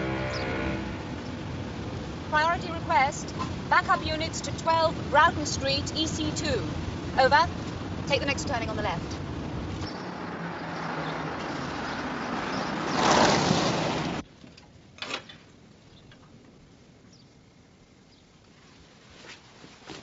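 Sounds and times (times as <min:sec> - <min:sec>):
car engine and road noise: 0:00.0 - 0:14.3.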